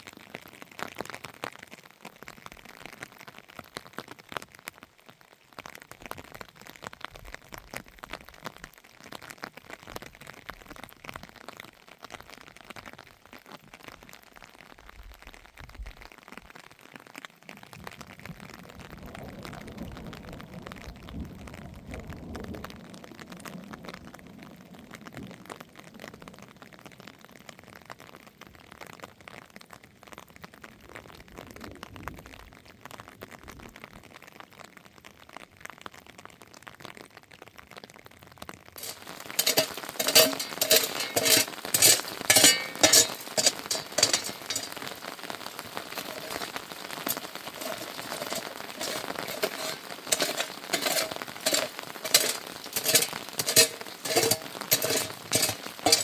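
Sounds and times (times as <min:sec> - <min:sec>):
rain pattering: 0:00.0 - 0:56.0.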